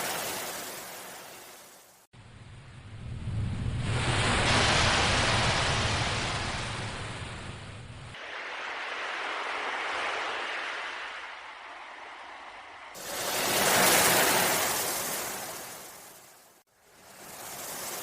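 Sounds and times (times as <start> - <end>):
ocean waves washing in: 0.0 - 18.0
low rumble: 2.2 - 8.2.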